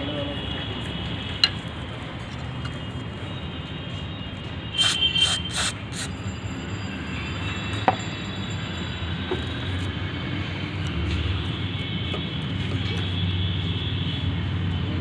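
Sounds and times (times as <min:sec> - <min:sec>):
aerosol spray can hissing: 0:04.8 - 0:06.1.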